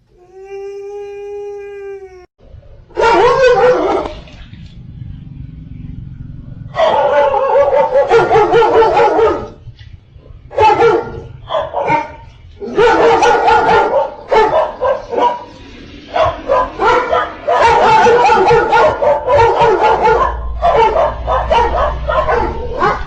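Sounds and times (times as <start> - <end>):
dog barking and yipping: 3.0 - 4.4, 6.7 - 9.6, 10.5 - 23.0.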